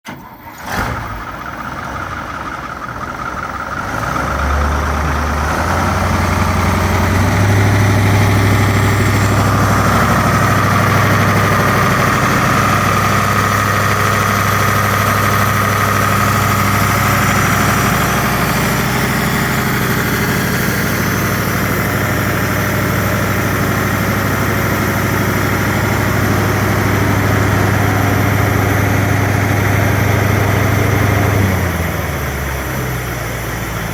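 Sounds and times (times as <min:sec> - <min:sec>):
diesel truck engine idling: 0:00.1 - 0:33.9.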